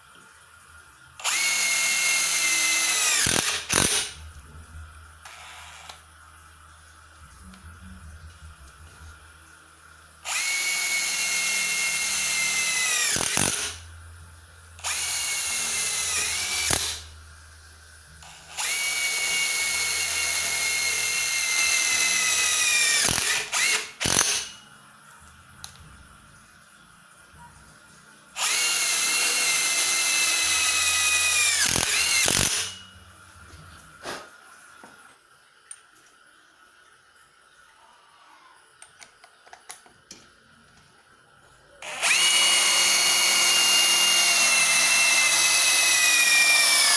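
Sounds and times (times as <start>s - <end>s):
impact driver whining: 1.2s - 4.2s, 14.8s - 17.0s, 18.2s - 24.6s, 28.4s - 32.8s, 41.8s - 46.9s.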